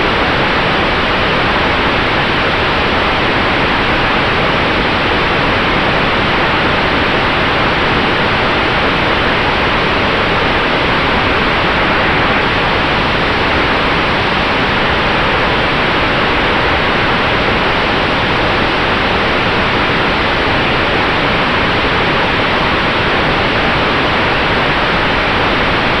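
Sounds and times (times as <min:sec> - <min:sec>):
faint steady whine: 0:00.0 - 0:26.0.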